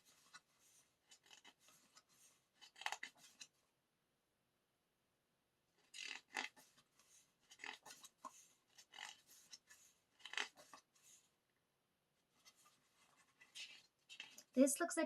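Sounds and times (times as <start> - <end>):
paper rustling: 0.0 - 3.6, 5.8 - 11.3, 12.2 - 14.6.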